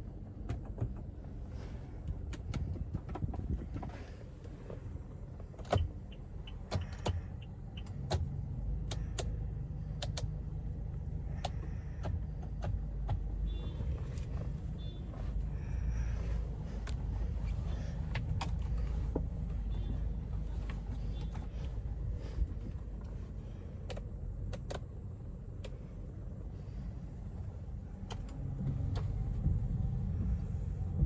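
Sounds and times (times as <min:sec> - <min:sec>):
car rumble: 0:00.0 - 0:31.0
sharp clicks and knocks: 0:00.1 - 0:01.3.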